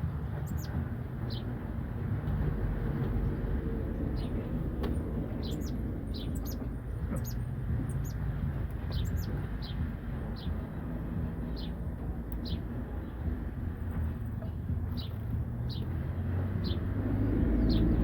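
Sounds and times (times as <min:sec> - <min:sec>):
steady low rumble: 0:00.0 - 0:18.0
finches chirping: 0:00.4 - 0:01.5, 0:05.3 - 0:10.8.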